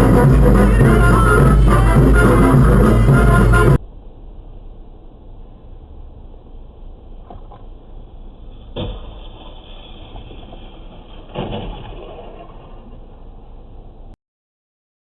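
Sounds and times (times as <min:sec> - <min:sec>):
car rumbling on road: 0:00.0 - 0:14.2
loud impact crash: 0:08.6 - 0:13.3.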